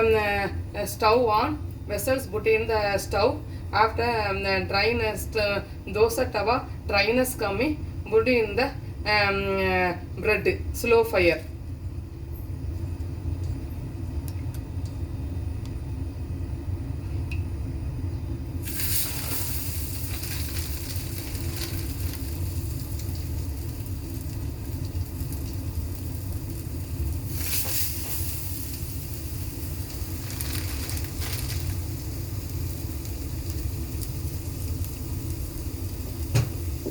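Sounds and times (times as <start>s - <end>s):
bread sizzling on a hot pan: 18.6s - 36.9s.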